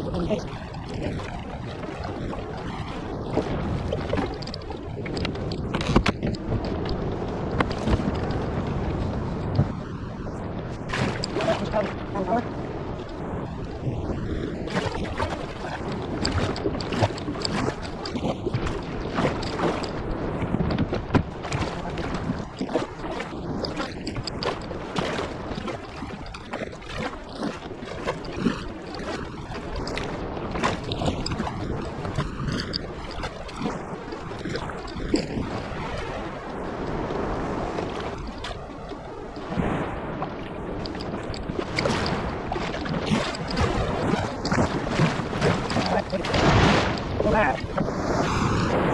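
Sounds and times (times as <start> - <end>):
water splashing and sloshing: 0.0 - 48.9
wind buffeting microphone: 0.0 - 48.9
irregular crackles: 40.7 - 47.9.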